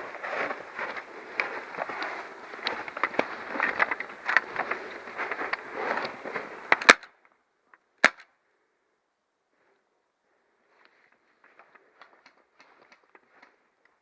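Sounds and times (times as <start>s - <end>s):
gear rustling: 0.0s - 6.8s
footsteps: 0.0s - 6.9s, 10.7s - 13.7s.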